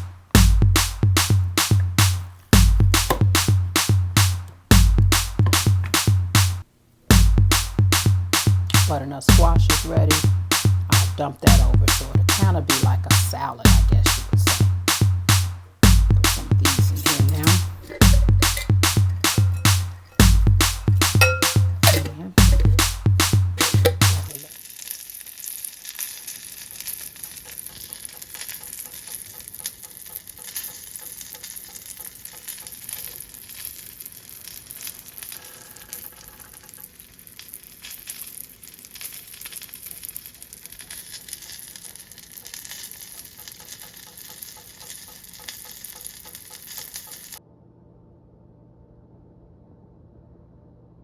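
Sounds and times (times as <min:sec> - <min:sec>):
food sizzling in a hot pan: 0:23.7 - 0:47.4.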